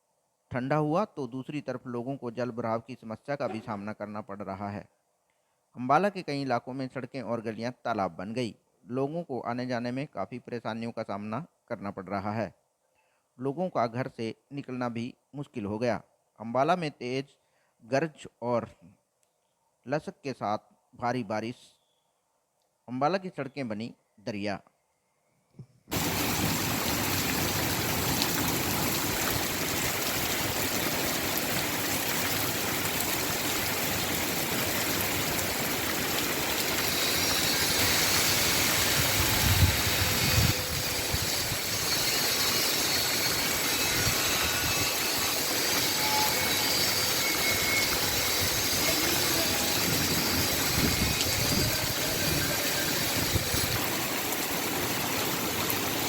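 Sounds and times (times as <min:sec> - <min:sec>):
heavy rain pouring: 0:25.9 - 0:56.0
water running on street: 0:25.9 - 0:56.0.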